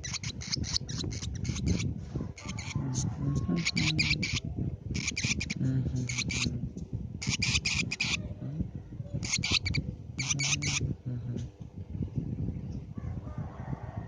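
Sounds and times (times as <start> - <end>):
bird screeching chirps: 0.0 - 1.8, 2.4 - 4.4, 5.0 - 6.5, 7.2 - 8.2, 9.2 - 10.8.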